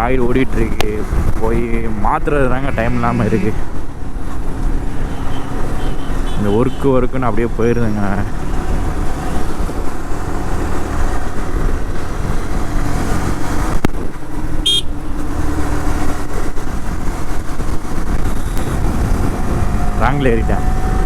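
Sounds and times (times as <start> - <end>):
wind rumble on microphone: 0.0 - 5.0, 8.2 - 21.0
motorcycle riding: 0.0 - 21.0
horn toot: 14.6 - 14.9.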